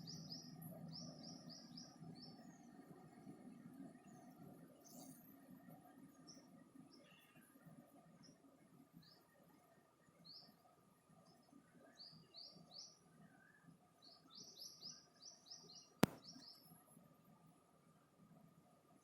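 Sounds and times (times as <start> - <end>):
small bird chirping: 6.2 - 7.6
sharp click: 16.0 - 16.3.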